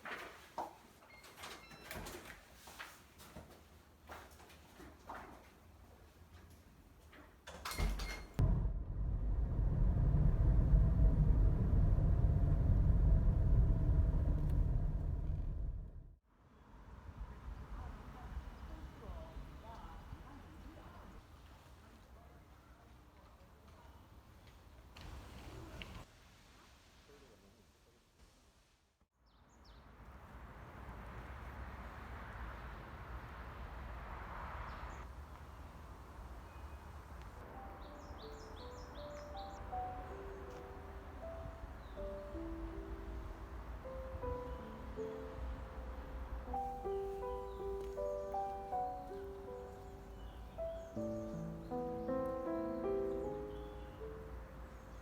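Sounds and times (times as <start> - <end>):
vehicle driving rumble: 8.4 - 16.2.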